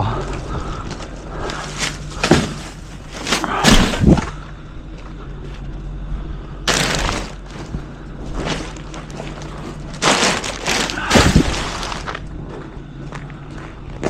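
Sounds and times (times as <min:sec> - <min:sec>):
low engine hum: 0:00.0 - 0:14.0
heavy thumps and bangs: 0:02.2 - 0:04.4, 0:10.0 - 0:12.2
rough clatter: 0:06.7 - 0:12.2.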